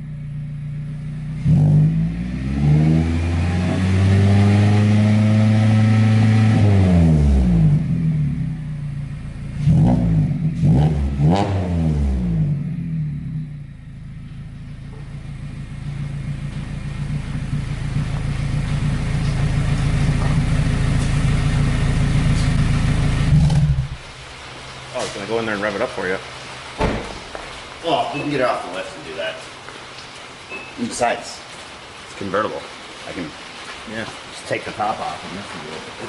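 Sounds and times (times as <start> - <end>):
car engine revving and idling: 0.0 - 26.8.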